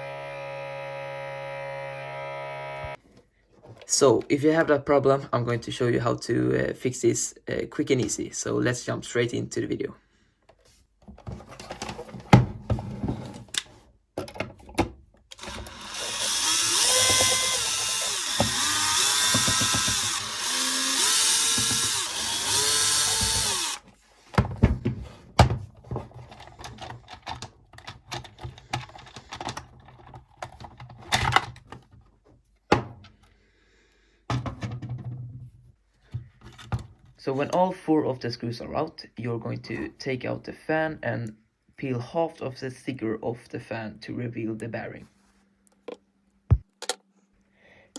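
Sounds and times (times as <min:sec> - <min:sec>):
power drill whining: 0:00.0 - 0:03.0, 0:15.4 - 0:23.9
handling clicks and knocks: 0:24.4 - 0:33.2.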